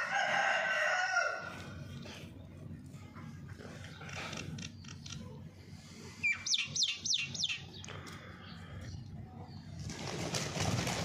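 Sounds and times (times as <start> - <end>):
small bird chirping: 6.2 - 7.9.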